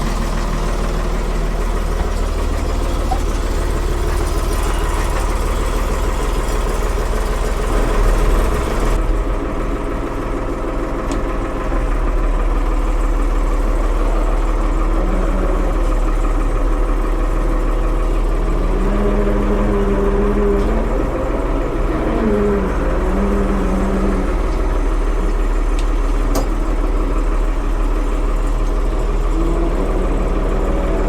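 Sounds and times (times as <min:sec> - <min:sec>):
backhoe engine rumbling: 0:00.0 - 0:31.0.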